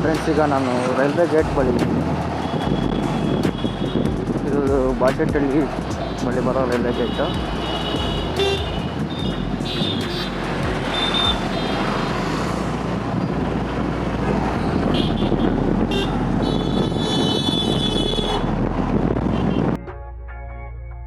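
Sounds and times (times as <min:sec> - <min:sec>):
road traffic: 0:00.0 - 0:19.8
vehicle horns honking: 0:02.3 - 0:04.1, 0:05.7 - 0:12.6, 0:14.6 - 0:18.5, 0:19.3 - 0:19.8.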